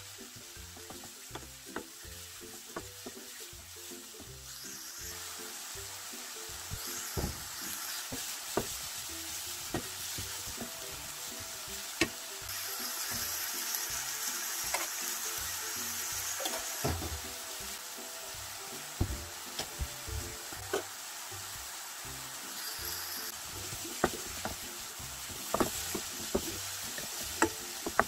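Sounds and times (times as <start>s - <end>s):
meat and vegetables sizzling: 0.0s - 28.0s
wooden spatula scraping a pan: 22.9s - 24.6s, 25.2s - 28.0s.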